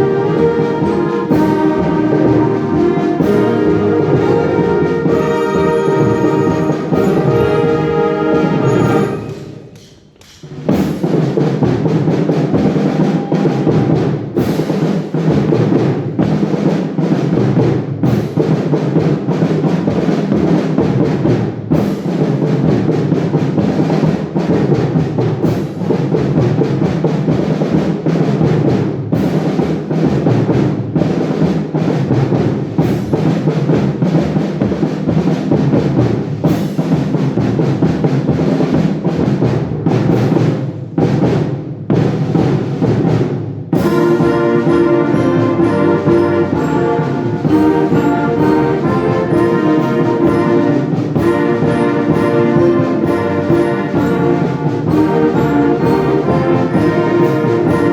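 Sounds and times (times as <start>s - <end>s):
held brass chord: 0.0s - 9.8s, 43.8s - 57.9s
wind band playing: 0.0s - 9.8s, 10.7s - 17.4s, 43.8s - 57.9s
timpani and drums beat: 0.0s - 57.9s.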